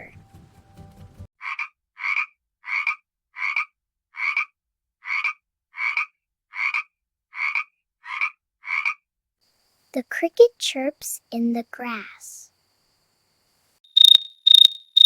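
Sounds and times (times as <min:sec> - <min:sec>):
frog croaking: 0:01.4 - 0:09.0, 0:13.9 - 0:15.0.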